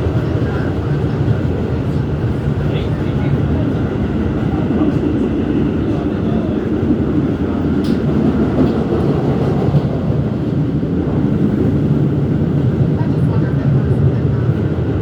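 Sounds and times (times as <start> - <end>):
subway wheels rumbling on rail: 0.0 - 15.0.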